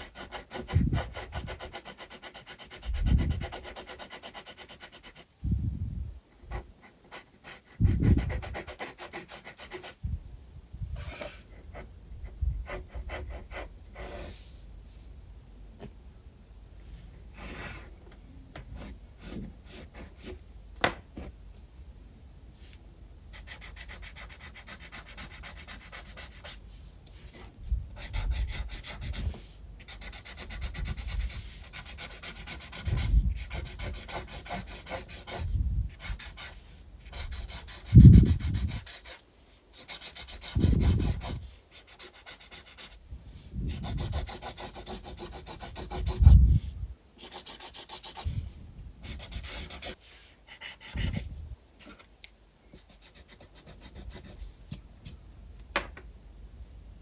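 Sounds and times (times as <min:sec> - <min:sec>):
pencil shading on paper: 0:00.0 - 0:05.3, 0:06.5 - 0:10.0, 0:18.7 - 0:20.4, 0:23.3 - 0:26.6, 0:28.0 - 0:43.0, 0:43.7 - 0:46.3, 0:47.2 - 0:48.3, 0:49.0 - 0:51.2.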